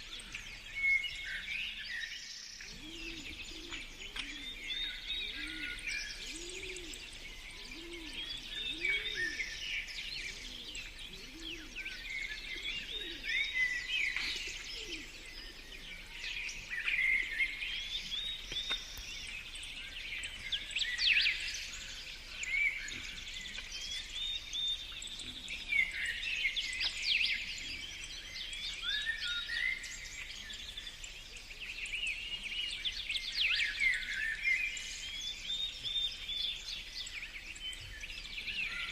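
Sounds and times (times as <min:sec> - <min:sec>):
songbirds chirping: 0:00.0 - 0:38.9
dove cooing: 0:02.7 - 0:09.6, 0:10.2 - 0:13.4.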